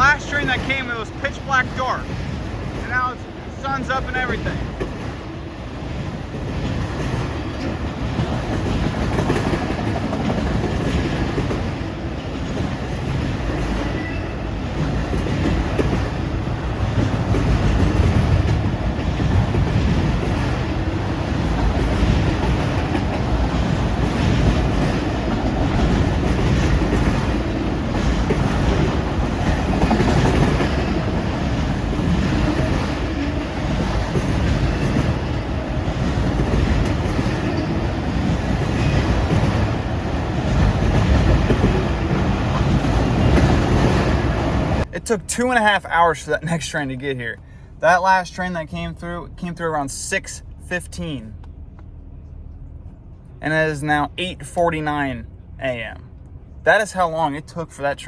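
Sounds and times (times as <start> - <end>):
wheels clicking over rail joints: 0.0 - 44.9
freight train rumbling past: 0.0 - 58.0.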